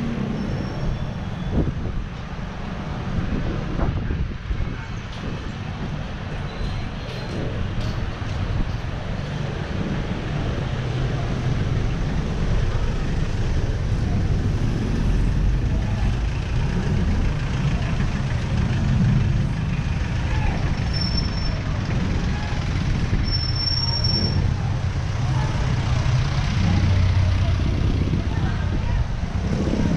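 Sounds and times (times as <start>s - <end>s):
road and traffic noise: 0.0s - 29.9s
high squeal: 0.2s - 1.7s, 20.8s - 21.7s, 23.2s - 24.5s
wind rushing over camera: 3.0s - 6.3s.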